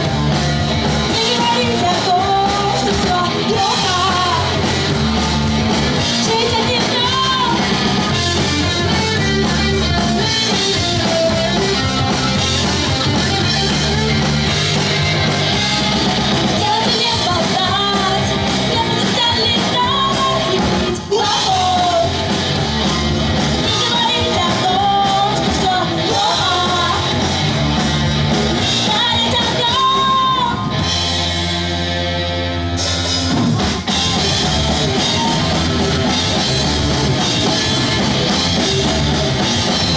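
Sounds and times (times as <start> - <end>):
live pop-punk band playing: 0.0 - 39.9
sung and shouted vocals: 23.6 - 27.1.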